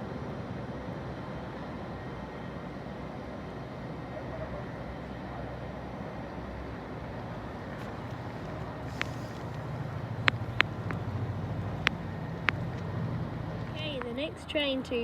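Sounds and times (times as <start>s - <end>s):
train rumble: 0.0s - 15.0s
sharp clicks: 8.0s - 13.0s.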